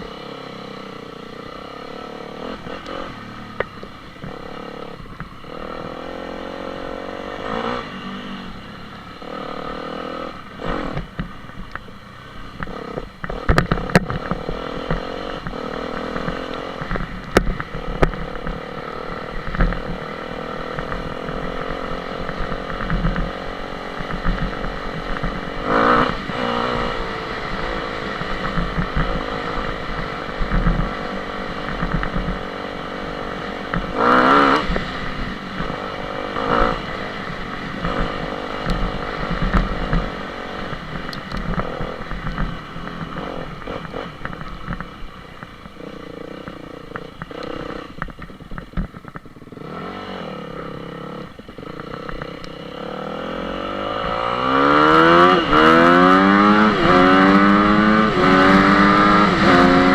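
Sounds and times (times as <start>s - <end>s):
dirt bike engine revving: 1.4s - 11.2s, 17.6s - 44.9s, 49.5s - 59.9s.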